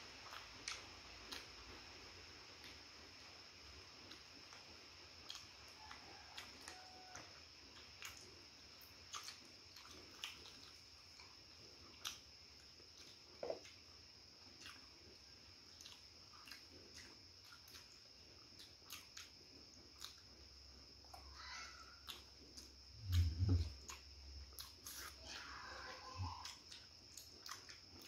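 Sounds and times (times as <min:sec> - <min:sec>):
faint high-pitched whine: 0:00.0 - 0:28.0
people chewing food: 0:00.0 - 0:28.0
small clicks and smacks: 0:04.0 - 0:13.8, 0:15.8 - 0:20.3, 0:22.0 - 0:25.2, 0:26.2 - 0:28.0.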